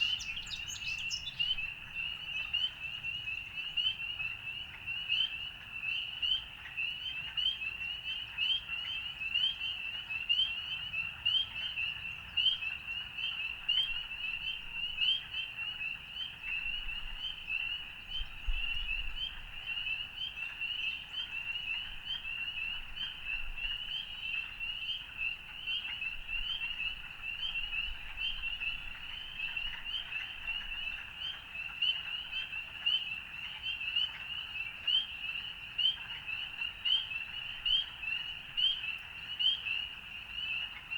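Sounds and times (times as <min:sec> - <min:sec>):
frogs calling: 0:00.0 - 0:05.0.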